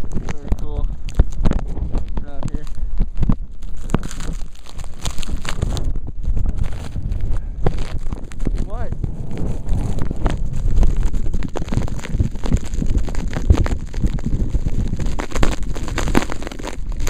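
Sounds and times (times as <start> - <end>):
blizzard wind buffeting microphone: 0.0 - 17.0.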